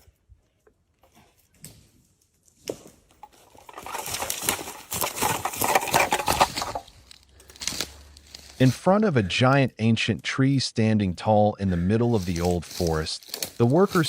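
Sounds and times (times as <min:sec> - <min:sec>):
dense crackling and rustling: 0:02.5 - 0:08.8, 0:12.1 - 0:14.0.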